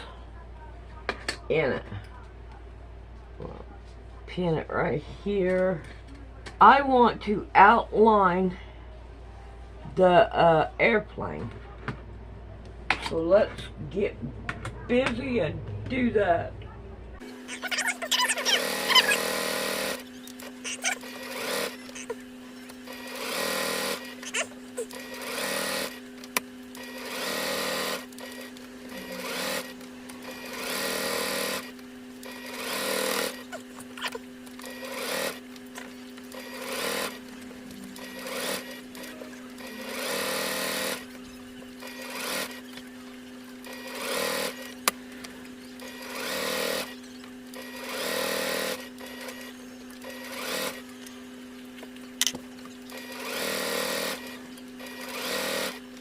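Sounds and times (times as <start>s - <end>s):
sewing machine stitching: 17.7s - 22.1s, 22.8s - 26.0s, 26.8s - 35.4s, 36.3s - 37.2s, 37.9s - 41.1s, 41.8s - 42.7s, 43.6s - 44.8s, 45.8s - 50.9s, 52.9s - 55.8s.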